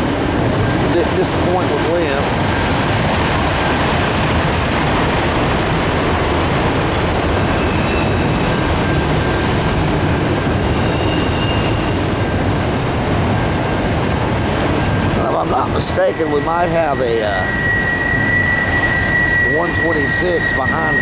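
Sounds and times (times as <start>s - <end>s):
train wheels rolling on rail: 0.0s - 21.0s
high wheel squeals: 6.0s - 21.0s.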